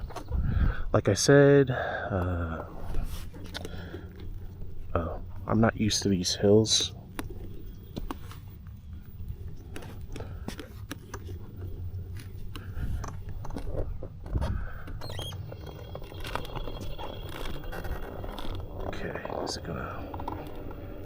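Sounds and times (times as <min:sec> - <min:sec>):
wind rumbling on microphone: 0:00.0 - 0:01.0, 0:11.8 - 0:21.0
unicycle clicks and rattles: 0:07.0 - 0:21.0
faint high whine: 0:14.5 - 0:21.0.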